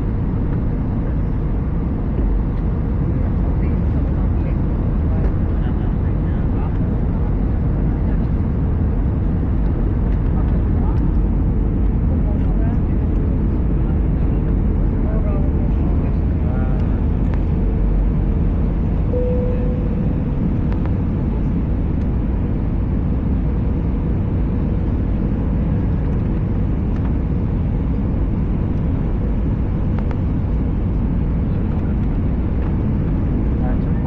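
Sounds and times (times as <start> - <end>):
aircraft cabin rumble: 0.0 - 34.0
faint steady tone: 19.1 - 20.5.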